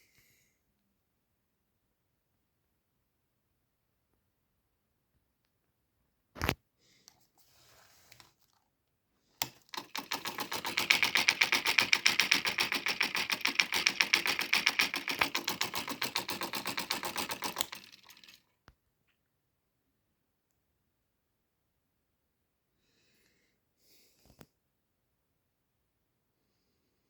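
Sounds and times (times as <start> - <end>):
electric motor clicking fast: 9.4 - 18.5.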